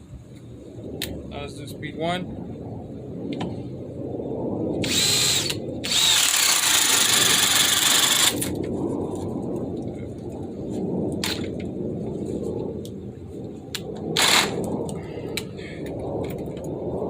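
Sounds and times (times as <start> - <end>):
cordless drill running: 4.8 - 8.5.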